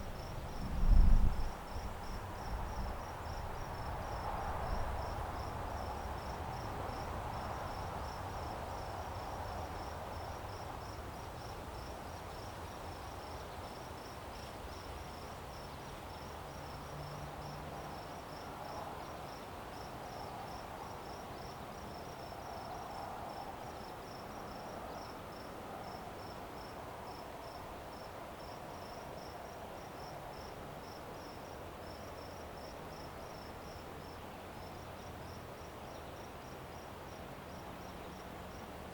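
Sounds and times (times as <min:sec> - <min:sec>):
low rumble and hiss: 0:00.0 - 0:18.7
cricket chirping: 0:00.0 - 0:38.8.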